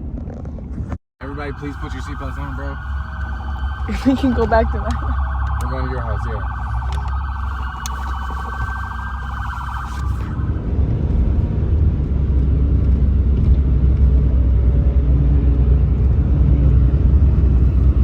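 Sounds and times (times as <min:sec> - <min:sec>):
car engine and road rumble: 0:00.0 - 0:18.0
pulsing electronic siren: 0:01.2 - 0:11.4.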